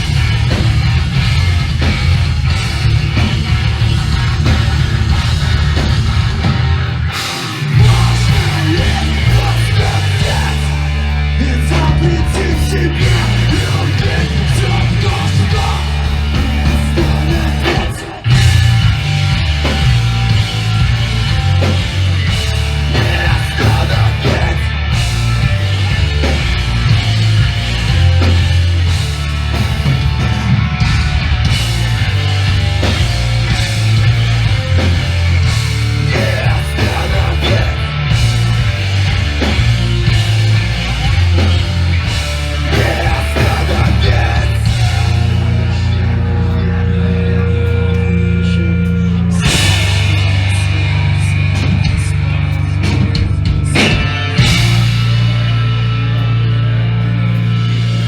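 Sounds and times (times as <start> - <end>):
pounding drums: 0.0 - 11.0, 11.7 - 45.8
bass guitar: 0.0 - 58.0
distorted guitars: 0.0 - 58.0.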